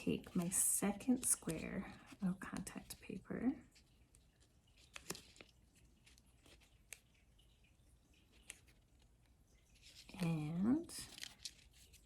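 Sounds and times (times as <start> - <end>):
contact paper crinkling: 0.0 - 12.0.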